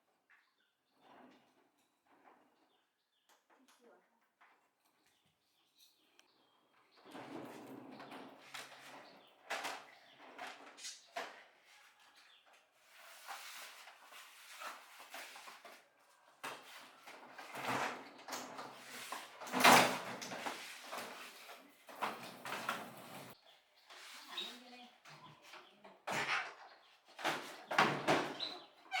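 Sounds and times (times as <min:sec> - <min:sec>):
objects scraping: 0:12.8 - 0:29.0.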